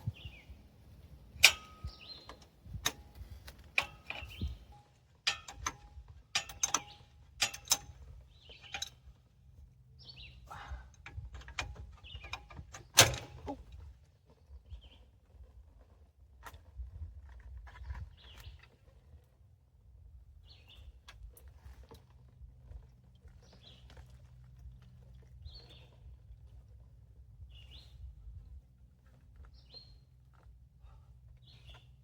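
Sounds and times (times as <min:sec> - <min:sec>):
metal tools clinking and knocking: 0:05.3 - 0:08.0.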